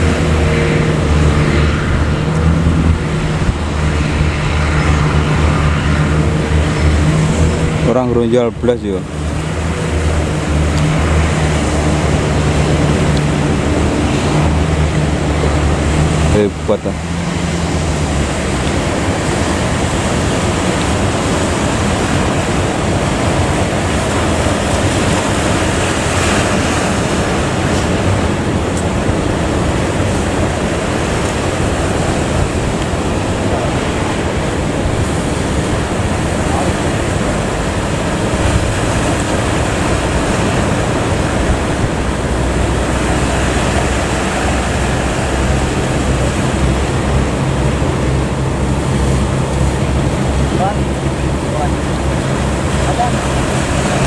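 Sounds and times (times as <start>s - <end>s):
low engine hum: 0.0s - 54.0s
sea and wind rushing: 0.0s - 54.0s.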